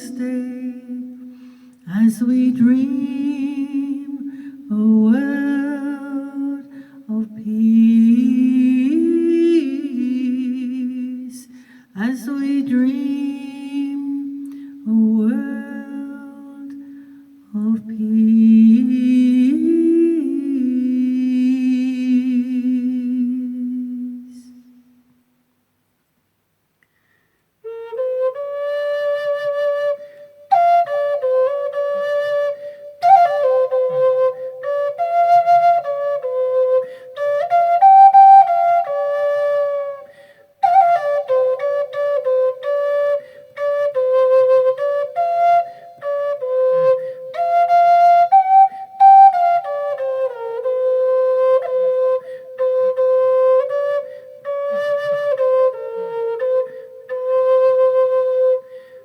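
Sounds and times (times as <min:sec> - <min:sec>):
flute playing slow melody: 0:27.6 - 0:59.0.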